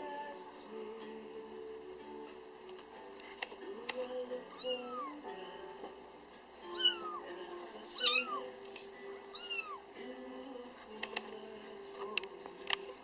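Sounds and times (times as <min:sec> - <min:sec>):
quiet background music: 0:00.0 - 0:13.0
kitten meowing: 0:04.6 - 0:05.2, 0:06.7 - 0:07.2, 0:08.0 - 0:08.5, 0:09.3 - 0:09.8.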